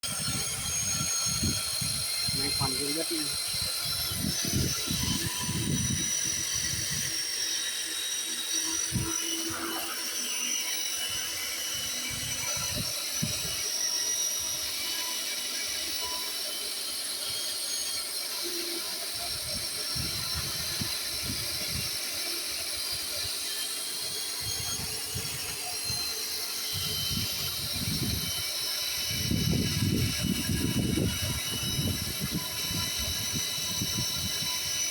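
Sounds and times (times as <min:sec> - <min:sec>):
drilling machine whine: 0:00.0 - 0:34.9.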